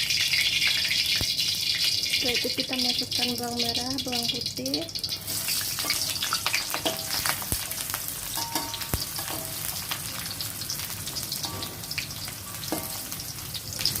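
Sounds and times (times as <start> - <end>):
shallots sizzling in hot oil: 0.0 - 14.0.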